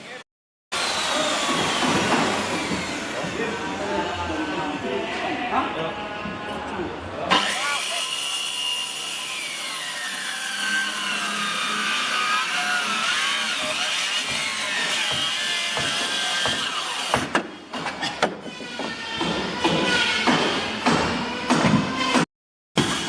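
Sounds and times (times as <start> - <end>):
power tool cutting wood: 0.7 - 4.9, 7.3 - 17.4.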